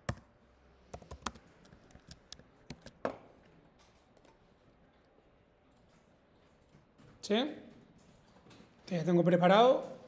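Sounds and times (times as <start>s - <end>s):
computer keyboard keystrokes: 0.9s - 3.0s.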